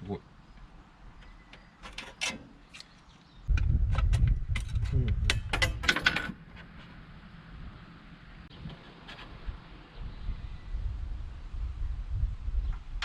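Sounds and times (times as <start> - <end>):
metal clicking and crunching: 1.2 - 6.8.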